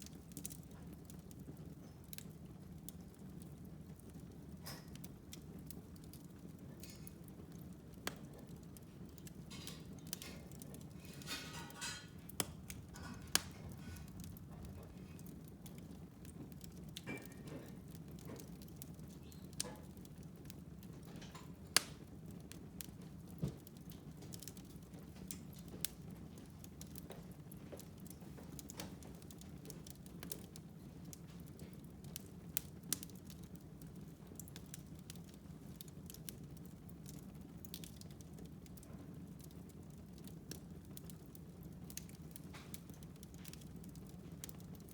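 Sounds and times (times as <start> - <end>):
wood crackles and pops: 0.0 - 44.9
fire flame rushing: 9.0 - 17.0.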